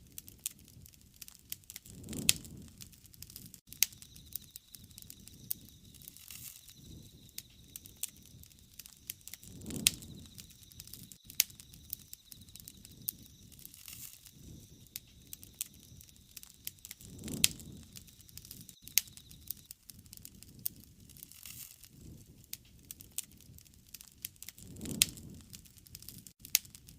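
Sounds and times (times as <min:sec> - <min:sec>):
wood fire crackling: 0:00.0 - 0:26.9
low swells of flame noise: 0:03.7 - 0:21.2.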